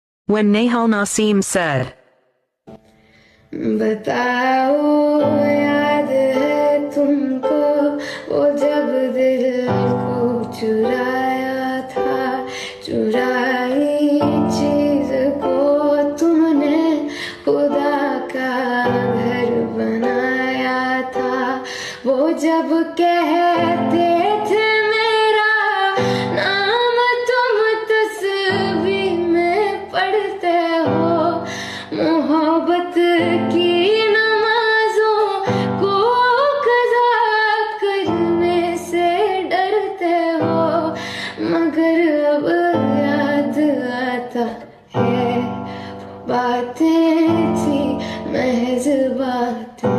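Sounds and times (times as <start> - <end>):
woman singing: 3.5 - 49.9.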